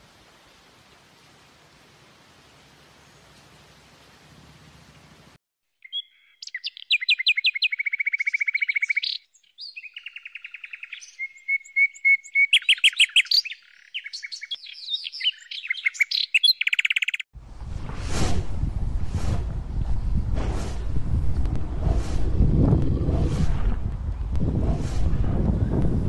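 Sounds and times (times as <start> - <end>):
songbird singing trills: 5.8 - 17.3
rushing noise: 17.4 - 26.0.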